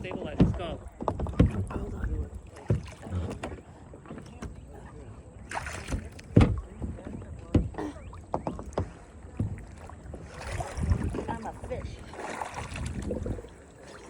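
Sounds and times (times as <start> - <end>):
knocks against kayak hull: 0.0 - 4.6, 5.5 - 10.2
water splashing around kayak: 0.0 - 14.0.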